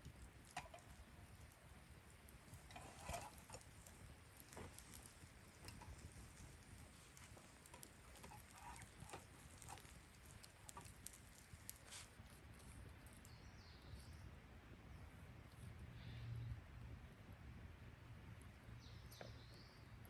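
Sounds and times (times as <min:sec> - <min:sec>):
faint clicks and ticks: 0:00.0 - 0:13.4.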